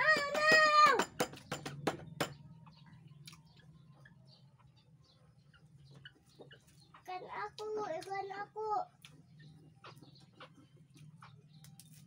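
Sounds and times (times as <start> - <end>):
person chewing raw vegetables: 3.1 - 3.8, 8.9 - 12.0.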